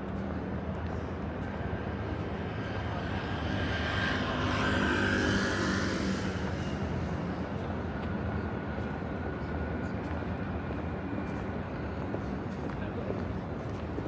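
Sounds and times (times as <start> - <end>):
city traffic hum: 0.0 - 14.0
vehicle passing with faint whine: 2.3 - 8.0.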